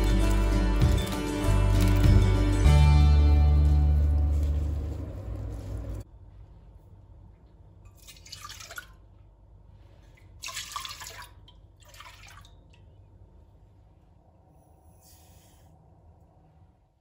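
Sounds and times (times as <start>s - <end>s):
water splashing: 10.3s - 12.7s.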